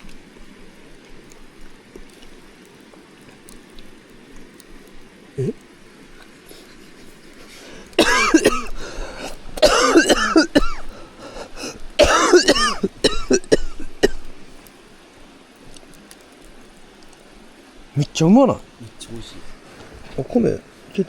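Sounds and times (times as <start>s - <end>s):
person coughing hard: 8.0s - 10.9s, 11.6s - 14.3s.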